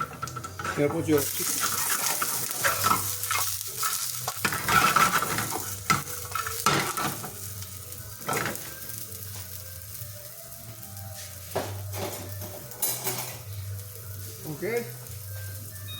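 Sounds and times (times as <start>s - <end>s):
chicken sizzling in a pan: 0.0s - 15.9s
utensil scraping a pan: 0.2s - 6.6s.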